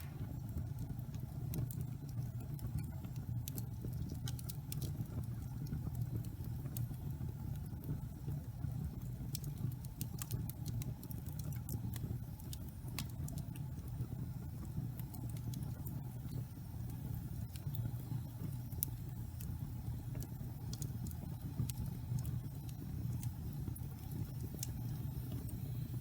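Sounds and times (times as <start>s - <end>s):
fire crackles and pops: 0.0s - 26.0s
low rumble of flames: 0.0s - 26.0s.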